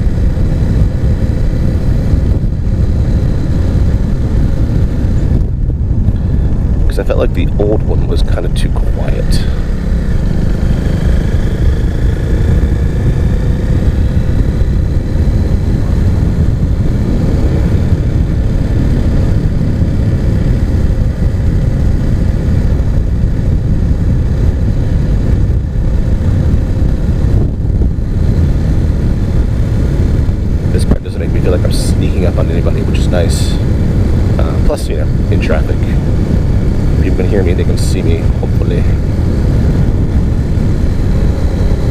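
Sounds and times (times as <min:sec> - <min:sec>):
motorcycle engine rumbling: 0:00.0 - 0:41.9.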